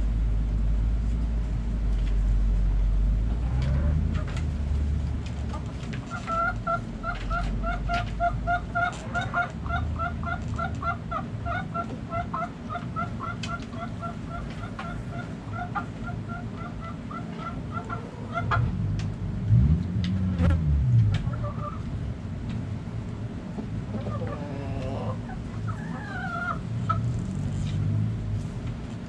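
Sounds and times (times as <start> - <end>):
chickens clucking: 5.4 - 18.8, 21.2 - 21.9, 23.5 - 27.2
low rising and falling sound: 18.5 - 22.2.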